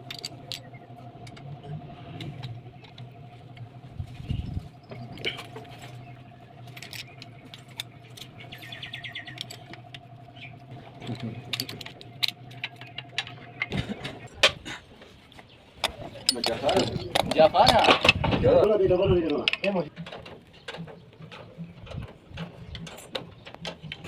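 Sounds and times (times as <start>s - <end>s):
steady low hum: 0.0s - 24.0s
metallic clicks and jangling: 16.2s - 18.2s.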